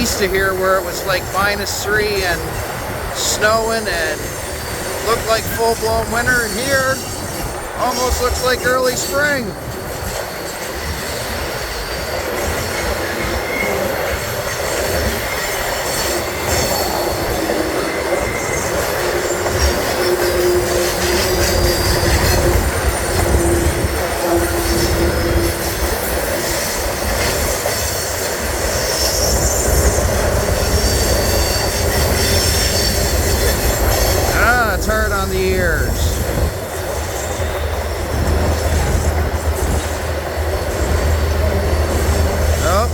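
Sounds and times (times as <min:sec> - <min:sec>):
train wheels rumbling and rattling: 0:00.0 - 0:42.9.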